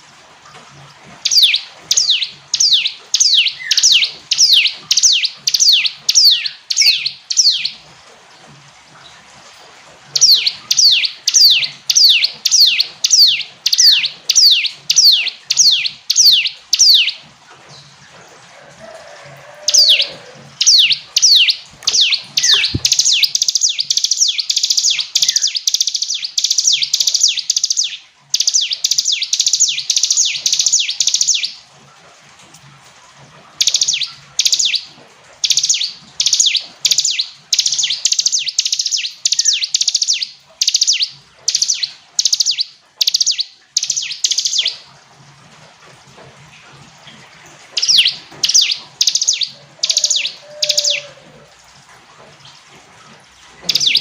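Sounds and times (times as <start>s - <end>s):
bird singing high sharp notes: 19.7s - 31.6s, 47.8s - 51.2s.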